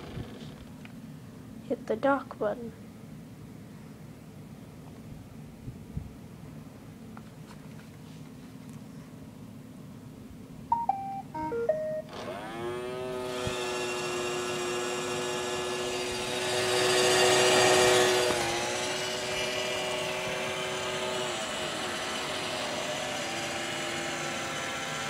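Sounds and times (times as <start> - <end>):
electronic beep melody: 10.7 - 12.1
robot vacuum motor whining: 12.1 - 25.0.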